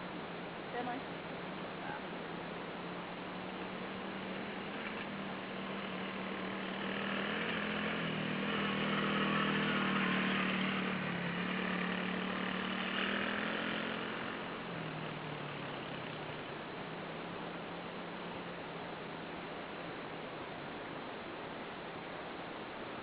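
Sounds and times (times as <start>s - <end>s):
dirt bike engine running: 2.3s - 18.5s.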